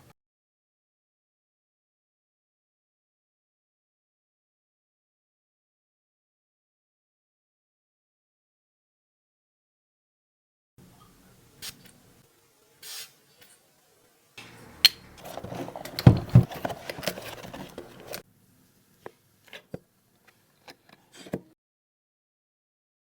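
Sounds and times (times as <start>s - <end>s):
packaging rubbing and scraping: 15.1s - 18.2s.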